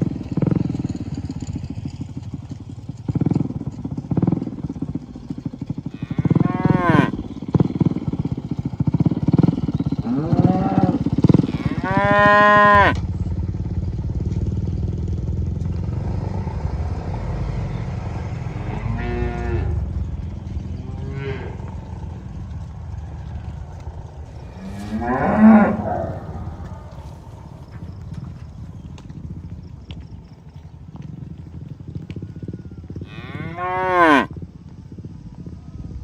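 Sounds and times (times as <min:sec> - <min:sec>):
cattle mooing: 0:05.9 - 0:07.2, 0:10.0 - 0:13.0, 0:15.9 - 0:27.7, 0:33.0 - 0:34.3
steady low rumble: 0:12.7 - 0:32.9.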